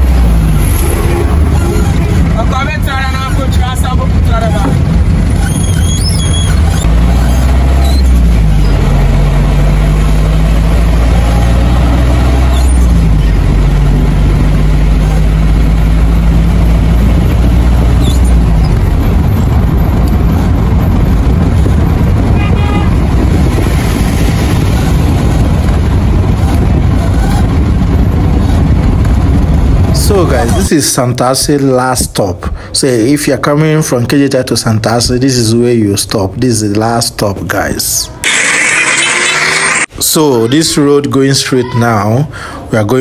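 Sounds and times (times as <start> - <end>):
car engine humming: 0.0 - 29.9, 38.1 - 40.0
tyre and road noise: 0.0 - 43.0.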